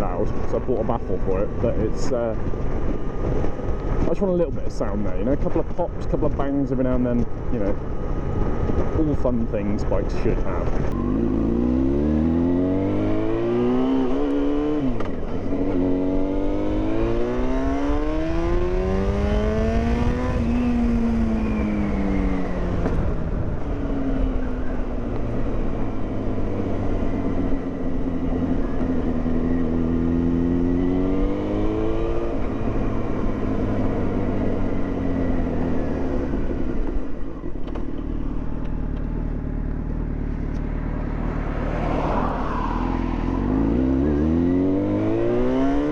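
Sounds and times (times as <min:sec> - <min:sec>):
motorcycle engine accelerating: 0:10.6 - 0:45.9.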